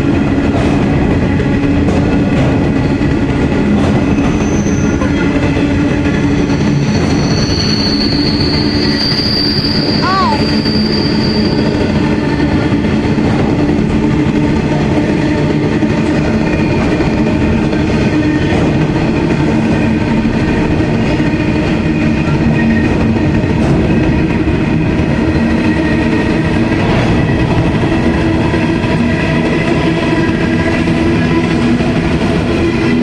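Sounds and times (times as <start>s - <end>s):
train wheels rumbling on rail: 0.0s - 33.0s
ringing wheel squeal: 4.0s - 13.2s.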